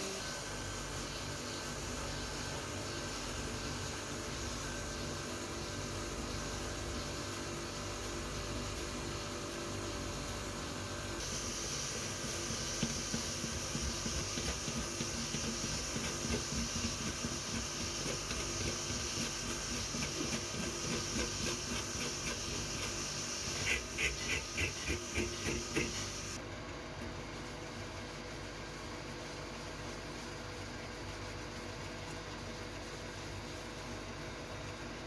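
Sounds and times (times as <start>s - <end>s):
compressed air hissing: 11.2s - 26.4s
uneven repeated strokes: 11.2s - 26.4s.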